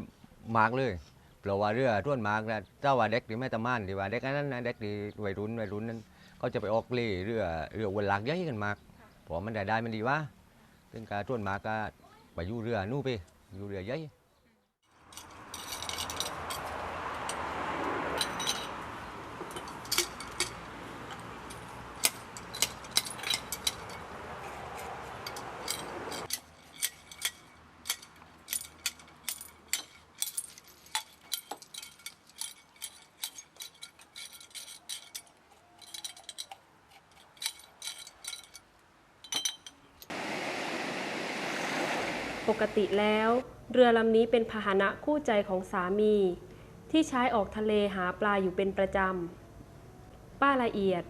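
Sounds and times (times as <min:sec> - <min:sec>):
small hard objects clinking: 0:15.0 - 0:17.4, 0:18.2 - 0:39.8.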